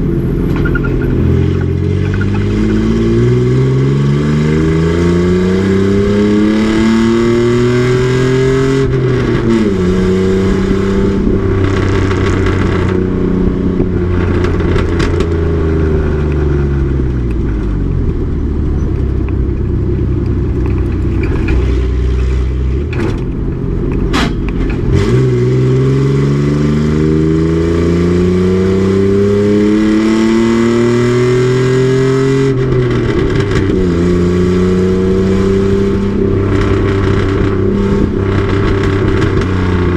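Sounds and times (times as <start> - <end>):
race truck engine revving: 20.9 - 39.9.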